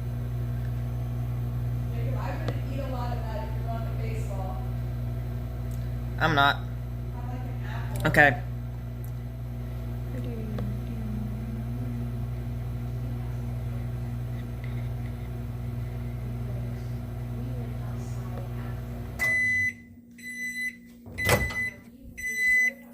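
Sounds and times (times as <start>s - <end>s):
microwave oven humming: 0.0s - 22.9s
microwave high beeps: 19.2s - 22.9s.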